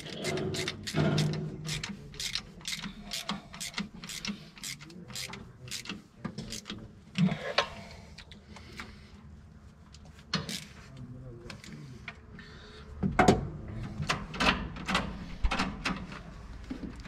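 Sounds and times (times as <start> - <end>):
ratchet wrench clicking: 0.0 - 6.7.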